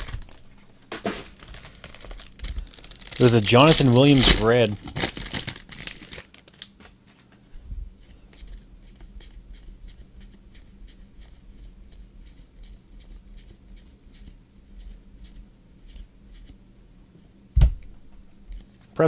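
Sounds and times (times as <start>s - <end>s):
loud thump: 17.6s - 17.8s.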